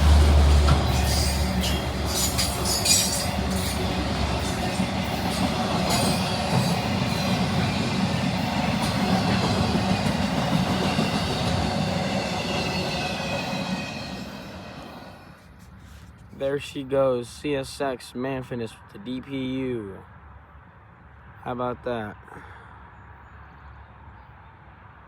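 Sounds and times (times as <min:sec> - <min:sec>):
train wheels clattering over rail joints: 0:00.0 - 0:14.6
wheel squeal: 0:00.7 - 0:03.8.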